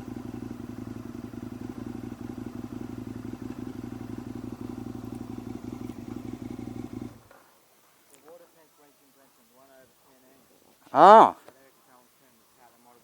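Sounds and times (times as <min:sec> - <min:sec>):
motorcycle engine running: 0:00.0 - 0:07.3.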